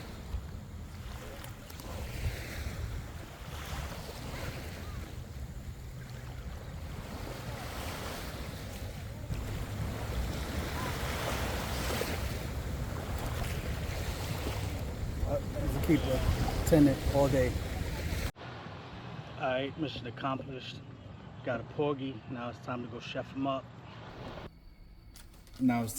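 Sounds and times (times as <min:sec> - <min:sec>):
wind rumbling on microphone: 0:00.0 - 0:18.3
waves washing on shoreline: 0:00.0 - 0:19.3.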